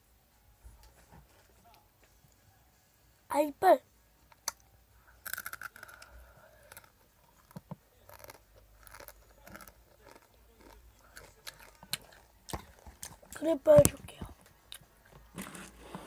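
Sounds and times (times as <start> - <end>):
crunchy snack being chewed: 5.2 - 13.4.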